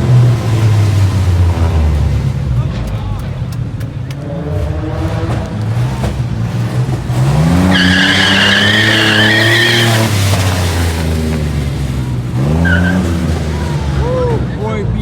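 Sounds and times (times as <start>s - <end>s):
car engine revving: 0.0s - 15.0s
tyres squealing: 6.1s - 10.9s.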